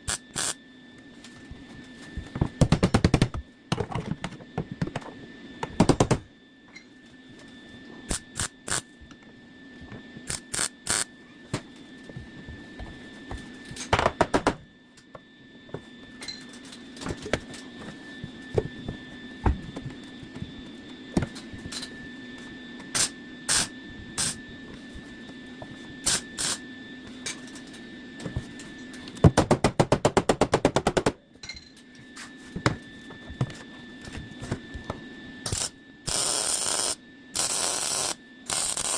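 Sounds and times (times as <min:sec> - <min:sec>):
welder crackling bursts: 0:00.0 - 0:00.6, 0:08.1 - 0:08.8, 0:10.3 - 0:11.1, 0:35.5 - 0:38.9
faint high whine: 0:00.0 - 0:02.6, 0:03.4 - 0:29.3, 0:31.3 - 0:38.9
steady hum: 0:00.0 - 0:38.9.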